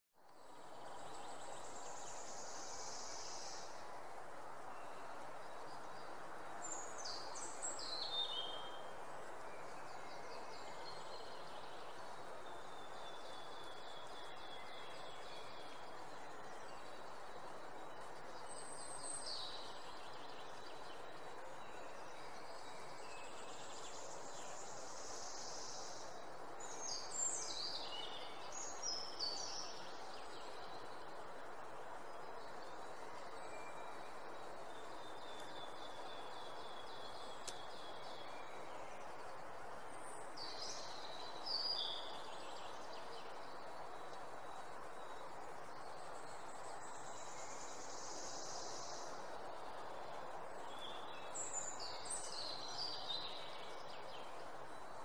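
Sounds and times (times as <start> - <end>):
steady rushing hiss: 0.2 - 55.0
birds singing: 4.6 - 54.9.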